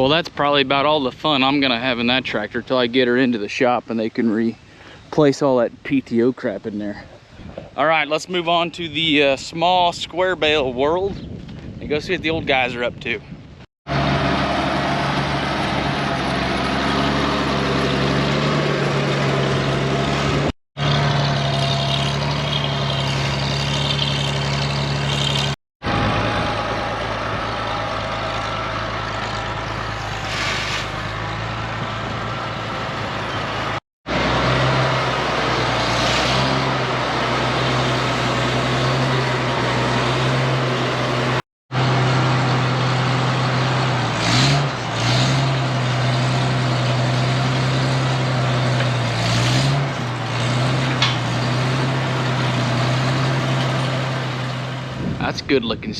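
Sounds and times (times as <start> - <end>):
vehicle engine running: 13.9 - 55.2.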